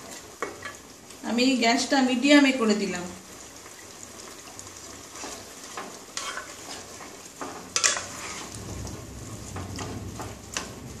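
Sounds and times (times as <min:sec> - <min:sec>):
chicken sizzling in hot oil: 0:00.0 - 0:11.0
spatula scraping and knocking pot: 0:05.1 - 0:11.0.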